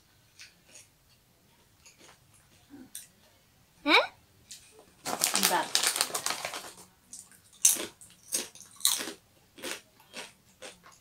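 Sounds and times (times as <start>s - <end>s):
chewing crispy chips: 0.3s - 0.9s, 1.8s - 3.1s, 5.0s - 11.0s.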